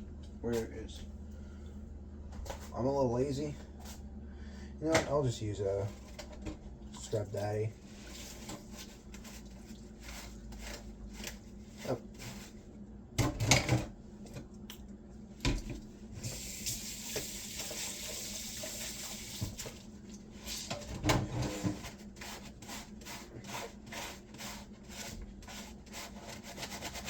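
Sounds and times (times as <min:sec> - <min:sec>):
sponge scrubbing a grater: 0:21.5 - 0:27.0.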